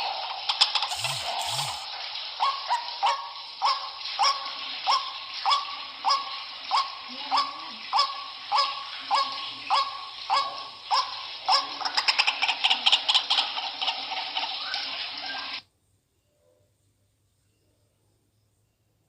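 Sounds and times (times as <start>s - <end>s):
waterhen croaking calls: 0.4s - 15.6s.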